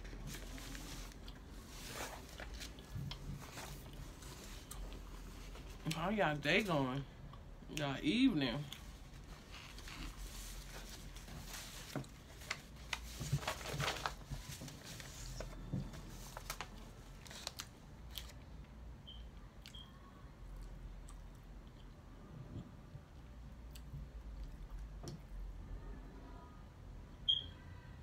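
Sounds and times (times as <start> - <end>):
crunchy chewing: 17.2 - 18.5.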